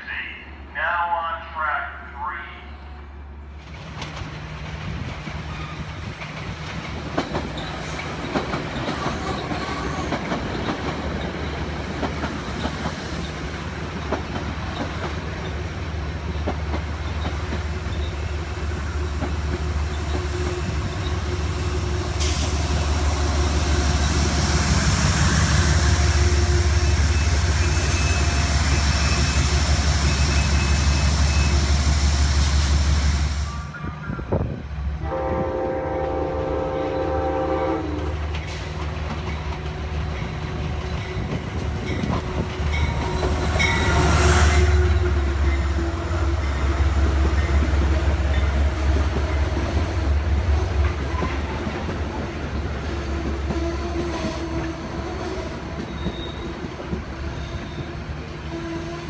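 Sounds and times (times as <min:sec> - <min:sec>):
train wheels clicking over rail joints: 0:03.6 - 0:21.3, 0:38.0 - 0:44.2.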